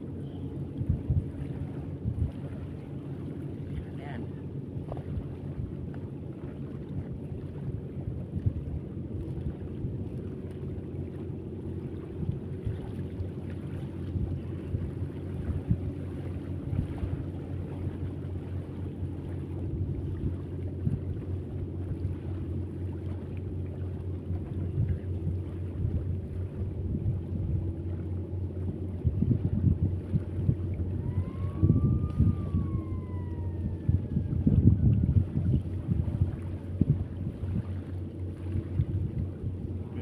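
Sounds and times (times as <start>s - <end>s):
low motor hum: 0.0s - 40.0s
wind buffeting microphone: 0.0s - 40.0s
rising and falling whistle: 31.0s - 35.1s.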